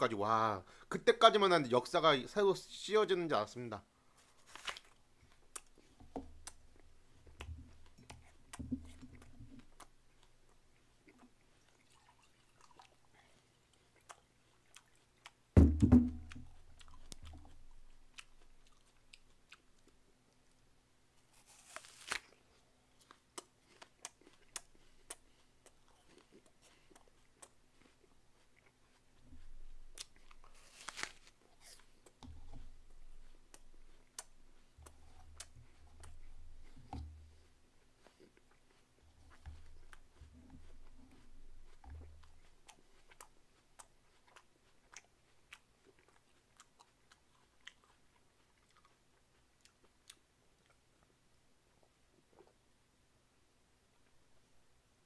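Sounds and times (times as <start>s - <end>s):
person crunching an apple: 4.2s - 6.8s, 21.2s - 50.8s.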